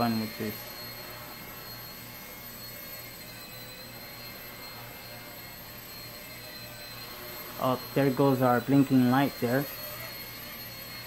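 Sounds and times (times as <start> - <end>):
high-pitched electric motor whine: 0.0 - 11.0
low rotor hum: 0.0 - 11.0.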